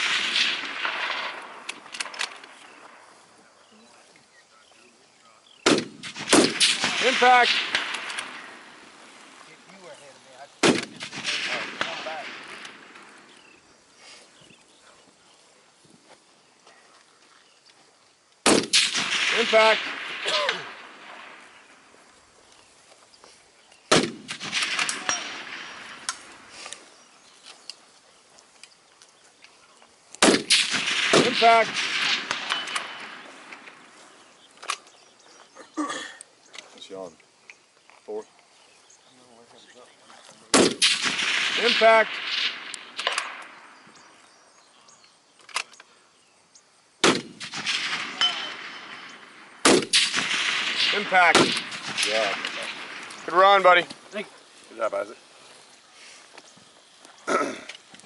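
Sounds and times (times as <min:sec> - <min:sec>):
rifle shot: 0:00.0 - 0:03.0, 0:05.6 - 0:09.0, 0:10.6 - 0:13.4, 0:18.4 - 0:21.9, 0:23.9 - 0:26.7, 0:30.2 - 0:33.9, 0:40.5 - 0:43.8, 0:47.0 - 0:53.6
sharp metallic click: 0:42.5 - 0:43.5, 0:45.4 - 0:45.9.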